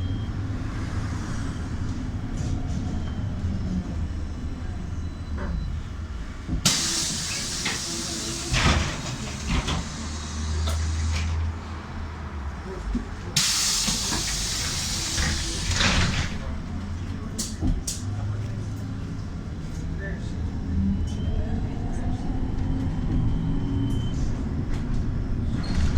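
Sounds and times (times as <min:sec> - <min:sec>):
trolleybus humming: 0:00.0 - 0:25.8
pneumatic doors hissing: 0:06.6 - 0:11.5, 0:13.4 - 0:16.5.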